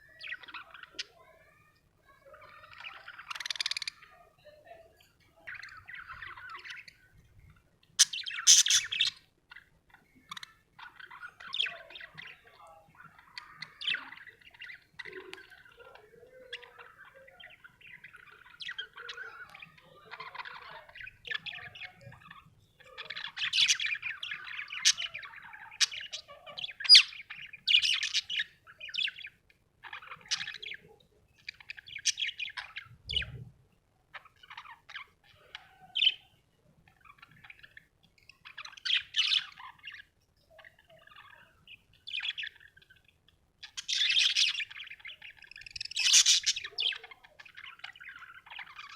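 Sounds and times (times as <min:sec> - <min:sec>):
budgerigar chirping: 0:08.0 - 0:09.2, 0:43.7 - 0:48.9.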